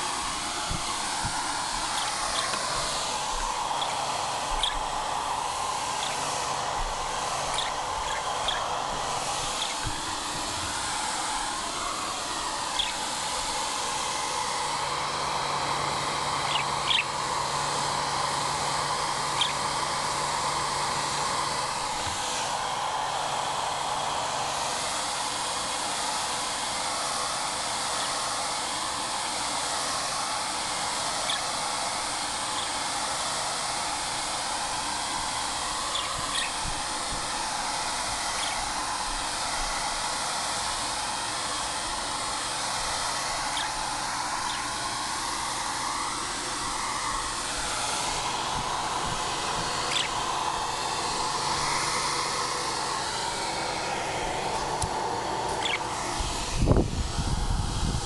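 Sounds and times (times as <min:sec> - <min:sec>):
steady rushing noise: 0:00.0 - 0:16.6, 0:45.3 - 0:58.0
budgie chirps: 0:07.5 - 0:08.6, 0:49.9 - 0:50.2.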